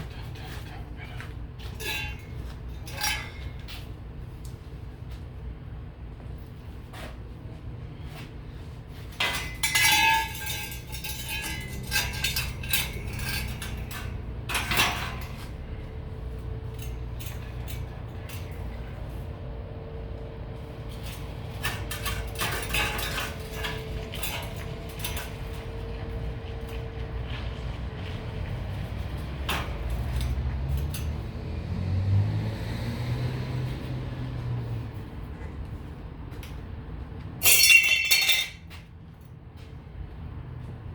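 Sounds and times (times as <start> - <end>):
scrap metal clanking: 0.0 - 3.9, 7.9 - 19.4, 20.5 - 31.6, 37.4 - 38.8.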